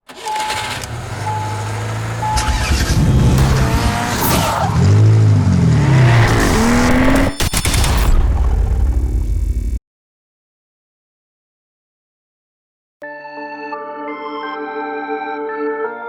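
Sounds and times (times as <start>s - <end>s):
car engine revving: 0.1s - 9.7s
short beeps: 2.2s - 3.6s.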